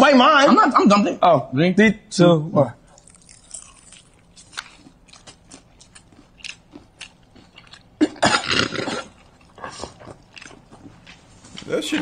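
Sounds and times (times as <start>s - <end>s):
crunching and chewing fried chicken: 2.9s - 12.0s.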